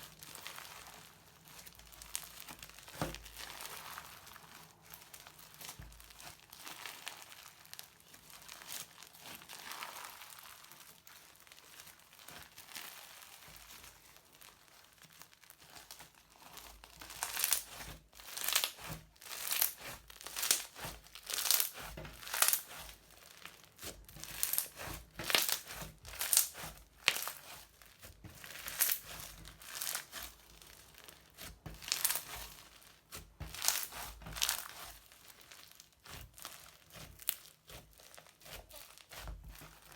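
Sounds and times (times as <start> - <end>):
crunchy slime squeezed by hand: 15.6 - 27.6, 28.4 - 39.9.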